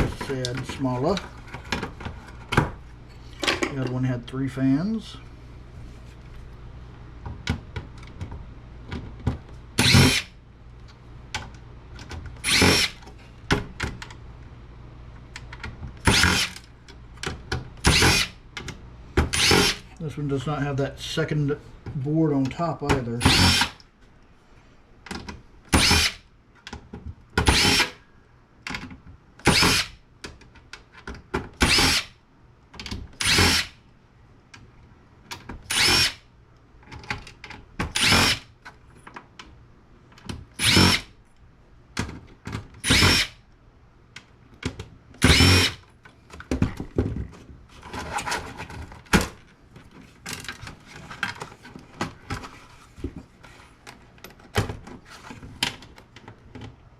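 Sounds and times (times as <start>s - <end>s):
power drill bursts: 9.8s - 10.3s, 12.4s - 13.0s, 16.0s - 16.6s, 17.8s - 18.4s, 19.3s - 19.8s, 23.2s - 23.8s, 25.8s - 26.2s, 27.5s - 28.0s, 29.4s - 29.9s, 31.6s - 32.1s, 33.2s - 33.8s, 35.7s - 36.2s, 38.0s - 38.4s, 40.6s - 41.1s, 42.8s - 43.4s, 45.2s - 45.8s.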